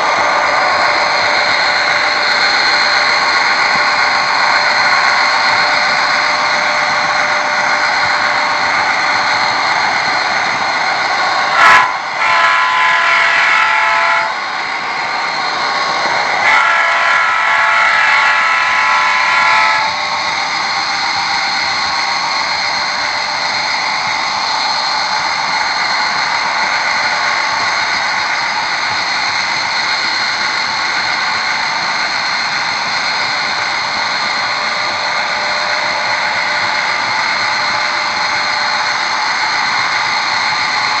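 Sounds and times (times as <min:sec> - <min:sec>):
model locomotive whine: 0:00.0 - 0:41.0.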